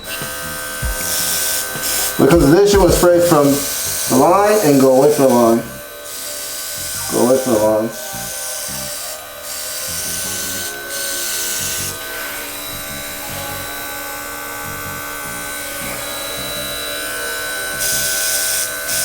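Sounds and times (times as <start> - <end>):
spray gun hissing: 0.0 - 12.0
air compressor whining: 0.0 - 19.0.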